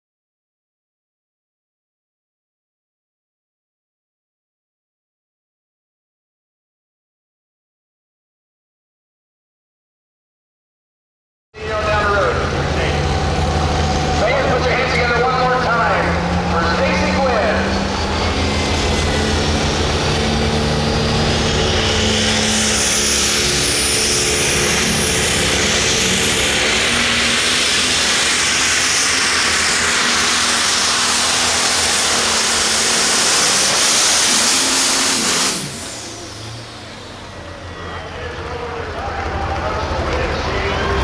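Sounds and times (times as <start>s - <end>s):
diesel tractor engine at full power: 11.6s - 41.0s
high turbo whistle: 20.1s - 38.6s.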